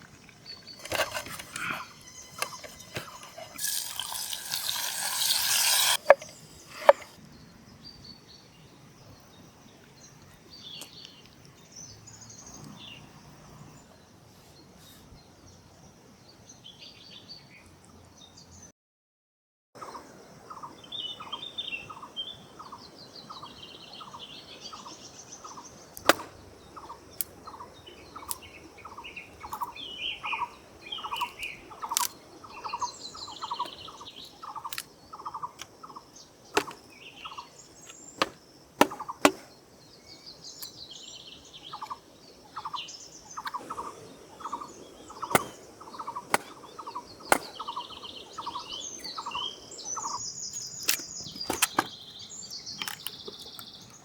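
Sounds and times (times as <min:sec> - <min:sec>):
birds warbling: 0:00.0 - 0:07.2, 0:19.9 - 0:54.0
sharp knocks: 0:36.6 - 0:36.8, 0:38.2 - 0:39.5, 0:45.3 - 0:45.6.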